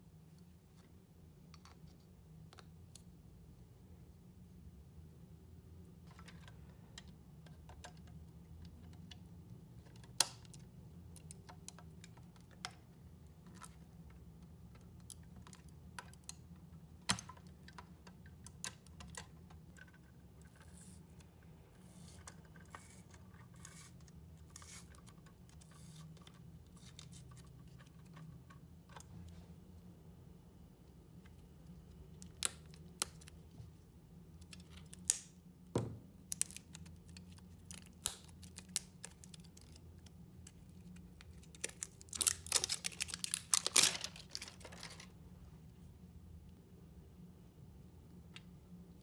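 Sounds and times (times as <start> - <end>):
faint low hum: 0.0 - 49.0
small parts clicking and tapping: 6.0 - 29.2, 31.2 - 33.5, 34.3 - 45.1.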